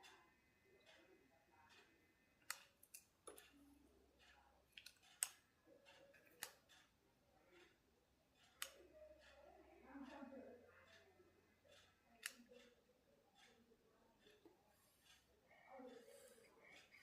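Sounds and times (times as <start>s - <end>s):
small tools clicking and tapping: 0.8s - 9.6s, 10.8s - 15.3s.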